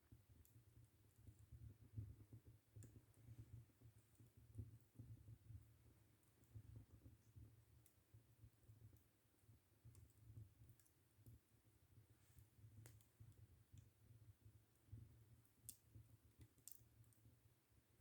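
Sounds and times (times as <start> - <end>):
wood fire crackling: 11.9 - 17.3.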